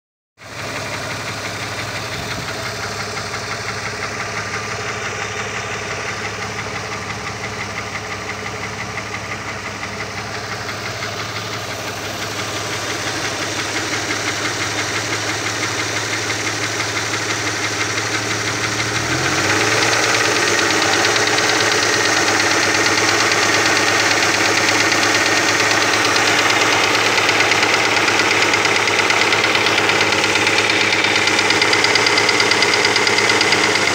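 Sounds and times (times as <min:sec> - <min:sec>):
car engine knocking: 0:00.4 - 0:33.9.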